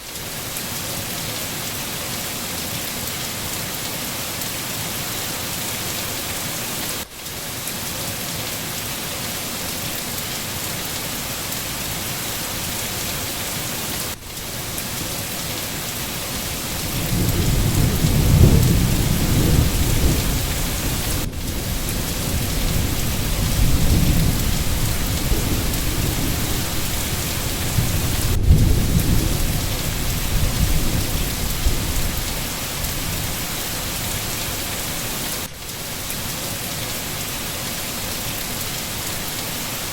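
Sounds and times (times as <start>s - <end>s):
heavy rain hissing: 0.0s - 39.9s
thunder rumbling: 16.3s - 34.2s.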